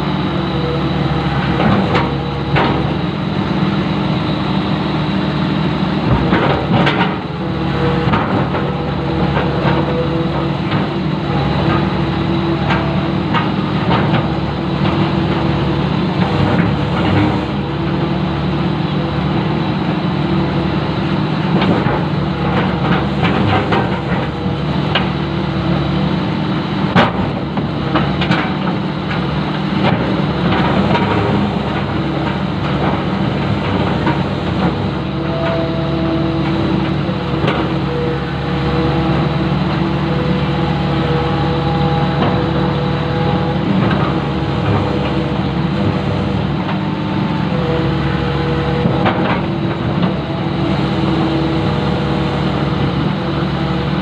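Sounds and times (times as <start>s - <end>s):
excavator engine running: 0.0s - 54.0s
knocks and clanks: 6.1s - 12.0s, 26.9s - 40.2s.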